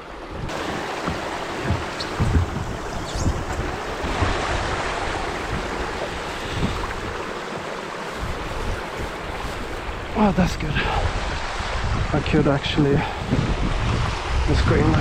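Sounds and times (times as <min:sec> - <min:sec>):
water splashing around kayak: 0:00.0 - 0:12.2, 0:13.0 - 0:15.0
low bumps: 0:00.4 - 0:07.4.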